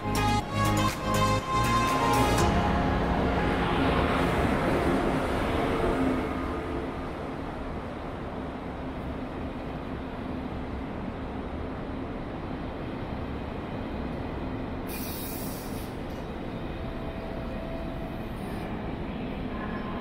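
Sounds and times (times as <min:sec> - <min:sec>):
short hiss: 0:14.9 - 0:16.0.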